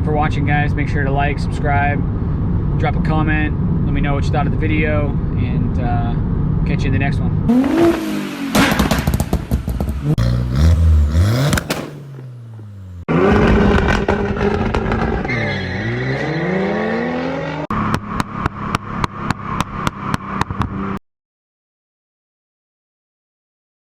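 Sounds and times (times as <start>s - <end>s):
exhaust sharp pops: 7.5s - 15.4s
car engine revving: 7.5s - 21.0s.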